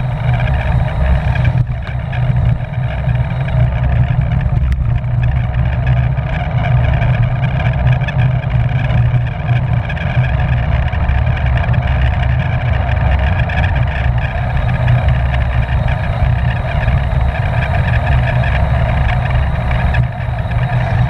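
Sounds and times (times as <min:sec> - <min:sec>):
bicycle tyres hissing: 0:00.0 - 0:07.0, 0:11.7 - 0:21.0
bicycle drivetrain: 0:00.0 - 0:21.0
wind buffeting microphone: 0:00.0 - 0:21.0.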